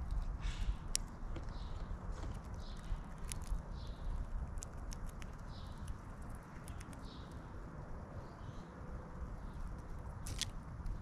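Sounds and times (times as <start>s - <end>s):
birds pecking and hopping: 0.0s - 11.0s
steady low rumble: 0.0s - 11.0s
soft bird calls: 0.2s - 11.0s.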